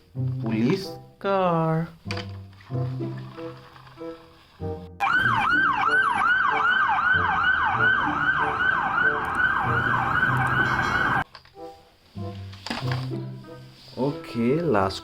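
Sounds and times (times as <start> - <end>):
toy electronic siren wailing: 5.0 - 11.2.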